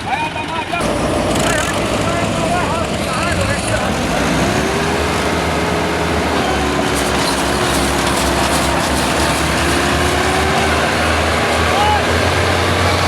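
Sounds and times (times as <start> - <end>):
road rumble: 0.0 - 13.0
vehicle engine running: 0.0 - 13.0.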